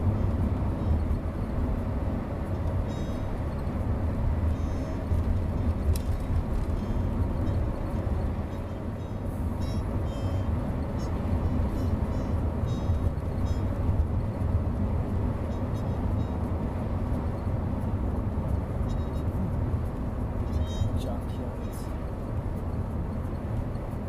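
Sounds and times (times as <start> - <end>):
car rumbling on road: 0.0 - 24.0.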